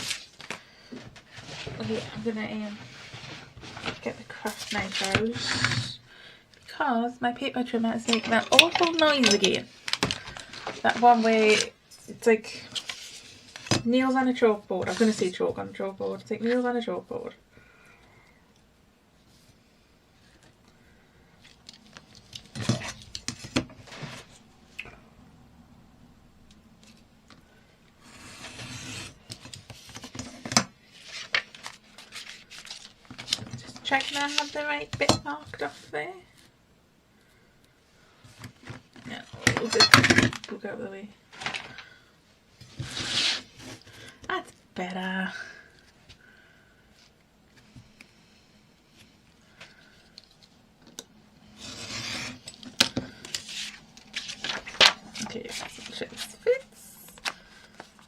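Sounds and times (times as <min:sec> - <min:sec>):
craft knife cutting paper: 0:28.0 - 0:29.2
paper and tools handled: 0:28.4 - 0:34.7, 0:51.6 - 0:58.0.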